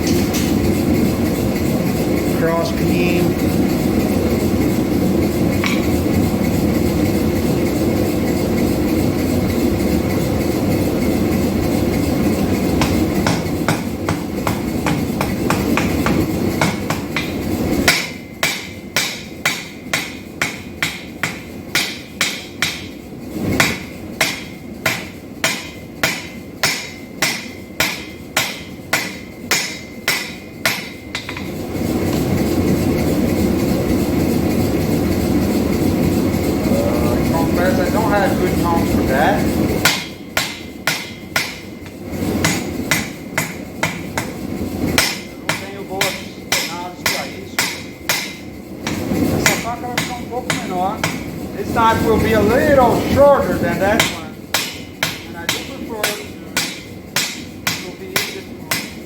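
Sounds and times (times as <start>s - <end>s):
hammer striking steel on anvil: 0.0s - 0.7s, 5.5s - 6.5s, 11.9s - 23.0s, 23.6s - 32.3s, 38.0s - 59.0s.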